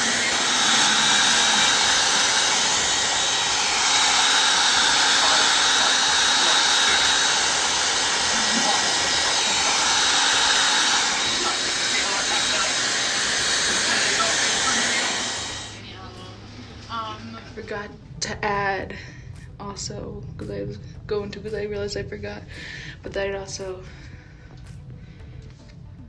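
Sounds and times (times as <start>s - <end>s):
hair dryer running: 0.0s - 18.0s.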